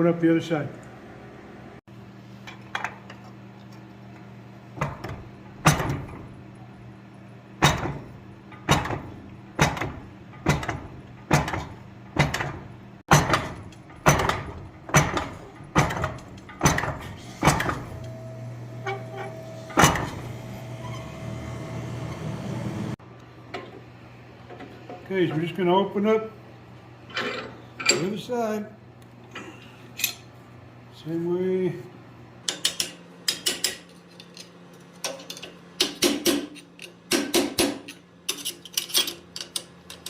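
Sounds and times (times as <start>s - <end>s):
hammer striking steel on anvil: 35.8s - 38.0s.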